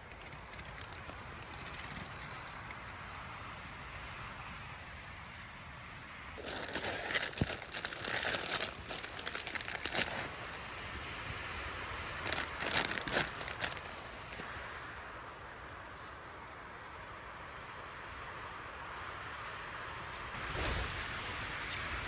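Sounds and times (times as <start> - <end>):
crinkly rustling of material: 0.0 - 3.5, 6.4 - 14.4
storm wind hiss: 0.0 - 22.0.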